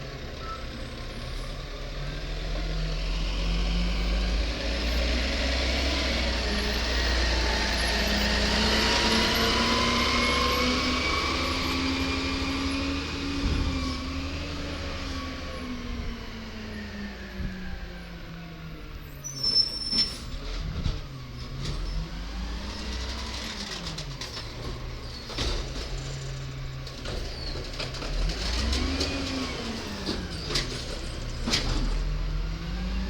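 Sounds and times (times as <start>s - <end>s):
garbage truck diesel engine: 0.0s - 33.0s
high squeal: 19.2s - 20.4s.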